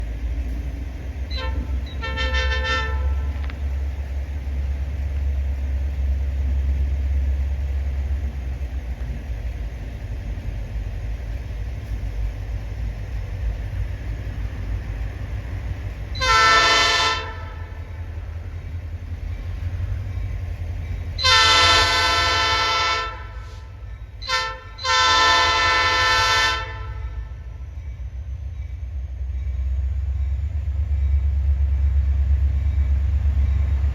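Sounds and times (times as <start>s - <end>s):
diesel locomotive engine rumble: 0.0s - 33.9s
locomotive air horn: 1.3s - 3.7s, 16.1s - 18.1s, 21.2s - 27.6s.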